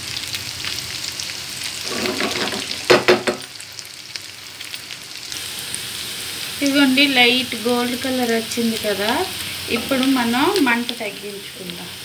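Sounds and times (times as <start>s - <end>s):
food sizzling in hot oil: 0.0s - 12.0s
spatula scraping pan: 1.8s - 3.0s
spatula knocking pan: 2.0s - 3.5s, 9.7s - 10.2s.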